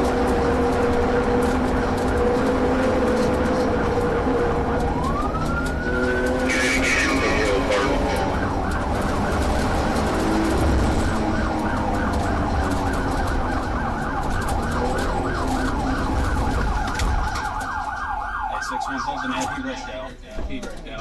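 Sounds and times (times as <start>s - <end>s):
car engine rumble and road noise: 0.0s - 21.0s
police siren yelping: 0.1s - 20.2s.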